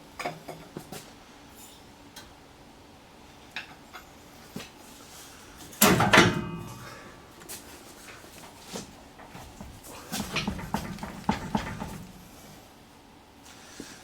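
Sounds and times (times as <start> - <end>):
metal knocks and clanks: 5.8 - 7.0, 8.9 - 12.6
loud metal clatter ringing: 5.8 - 7.1.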